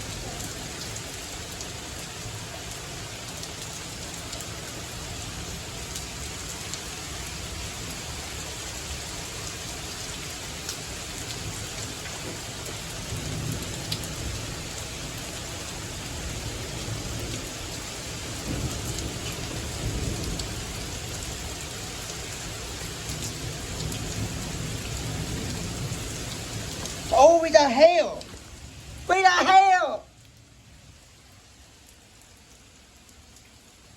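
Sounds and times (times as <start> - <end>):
heavy rain: 0.0 - 33.9
thunder rumbling: 18.4 - 20.9.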